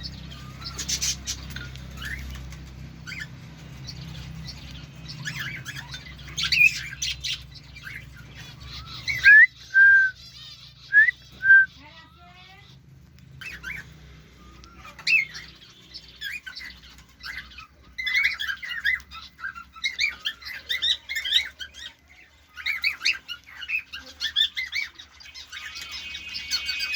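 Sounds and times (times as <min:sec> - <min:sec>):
bird chirping: 0:00.0 - 0:26.9
bird twittering: 0:04.0 - 0:12.1
bird whistles: 0:08.5 - 0:11.8.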